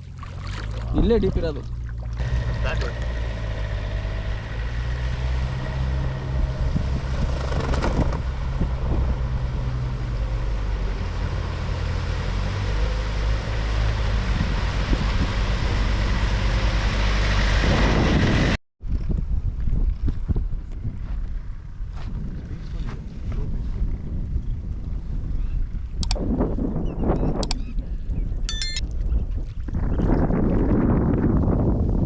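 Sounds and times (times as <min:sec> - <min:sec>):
engine running: 0:02.2 - 0:18.6
wind noise on microphone: 0:04.8 - 0:11.1, 0:13.5 - 0:32.0.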